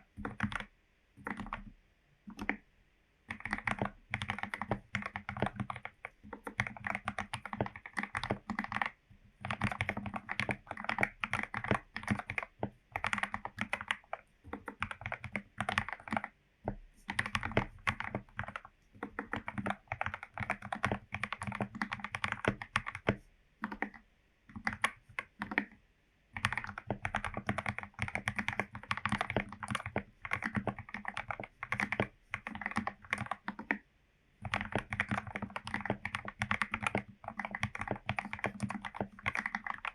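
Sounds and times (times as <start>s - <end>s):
typing on mechanical keyboard: 0.0s - 2.6s, 3.3s - 33.8s, 34.4s - 39.9s.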